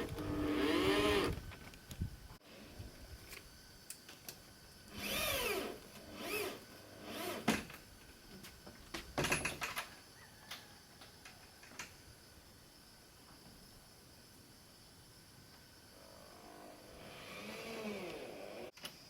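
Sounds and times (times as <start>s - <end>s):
power drill whining in bursts: 0.0s - 1.4s, 4.9s - 7.5s, 16.4s - 18.7s.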